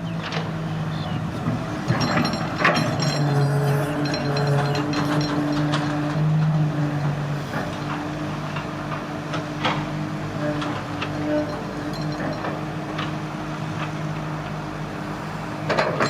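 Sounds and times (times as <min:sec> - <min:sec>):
excavator diesel engine running: 0:00.0 - 0:16.0
metallic clanks and knocks: 0:01.8 - 0:08.0, 0:10.6 - 0:13.2, 0:15.7 - 0:16.0.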